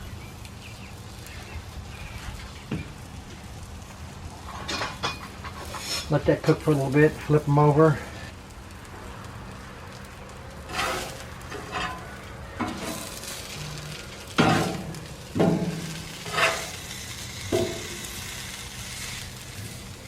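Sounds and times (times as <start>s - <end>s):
chicken sizzling in oil: 0.0s - 20.0s
spatula scraping steel: 4.4s - 6.8s, 10.6s - 19.8s.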